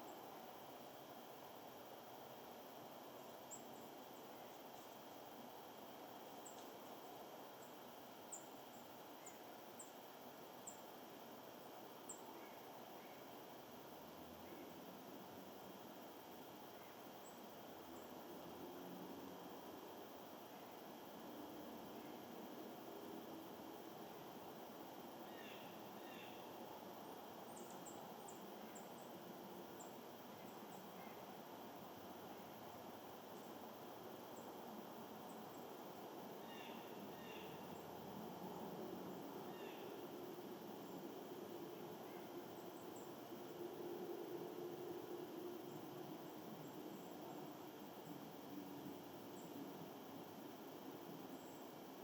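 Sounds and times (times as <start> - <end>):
outdoor background hiss: 0.0 - 52.0
small birds chirping: 3.0 - 5.4, 6.2 - 11.0, 11.9 - 13.6, 14.3 - 18.4, 24.6 - 43.5, 50.7 - 52.0.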